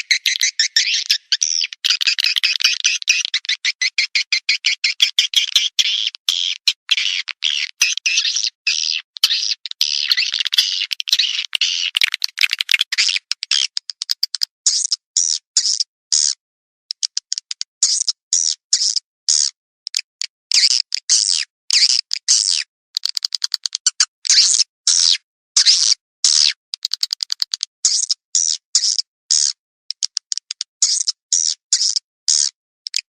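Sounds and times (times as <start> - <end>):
buzzy bird chirps: 0.0 - 16.4, 17.8 - 19.5, 30.8 - 32.5.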